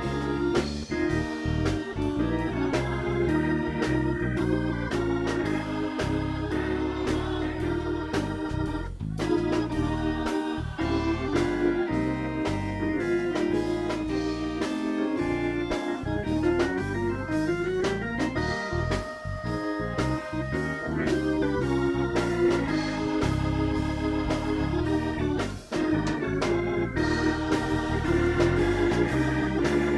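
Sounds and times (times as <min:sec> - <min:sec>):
organ chords: 0:00.0 - 0:29.9
drum hits: 0:22.2 - 0:29.9.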